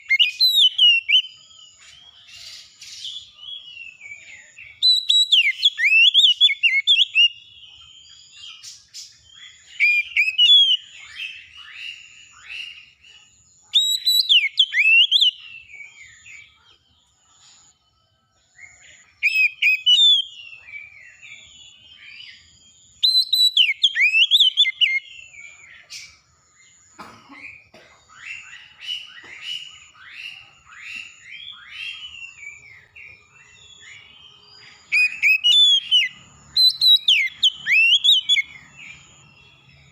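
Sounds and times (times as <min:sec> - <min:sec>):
songbird whistled phrases: 0:00.0 - 0:01.8, 0:02.4 - 0:07.5, 0:09.3 - 0:13.0, 0:13.7 - 0:16.4, 0:19.0 - 0:25.6, 0:28.2 - 0:39.3.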